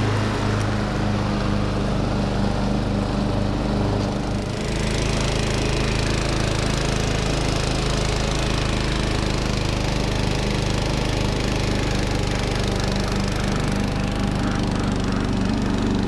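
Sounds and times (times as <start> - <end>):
lawn tractor engine running: 0.0 - 16.0.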